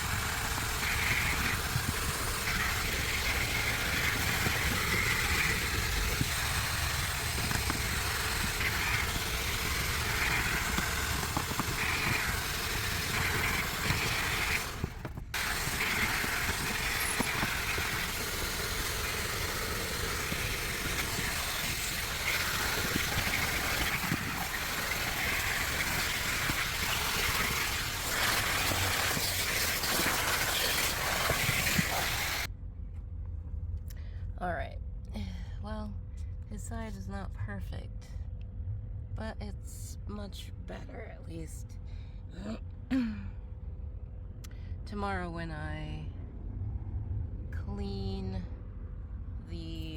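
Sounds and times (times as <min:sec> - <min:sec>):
vacuum cleaner running: 0:00.0 - 0:32.5.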